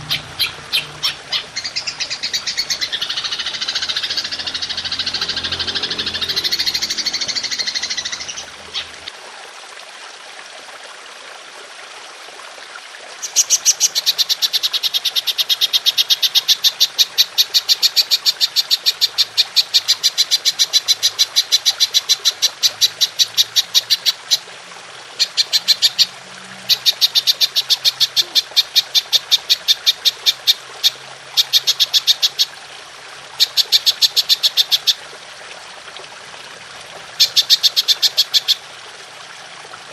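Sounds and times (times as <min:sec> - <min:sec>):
bird song: 0:00.0 - 0:09.1, 0:37.2 - 0:38.6
grasshopper pulsed calling: 0:00.0 - 0:09.1.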